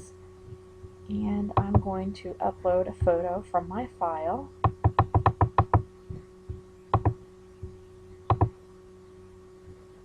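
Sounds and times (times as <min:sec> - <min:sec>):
faint hum: 0:00.0 - 0:10.0
computer mouse clicking: 0:04.6 - 0:05.8, 0:06.9 - 0:07.2, 0:08.3 - 0:08.6.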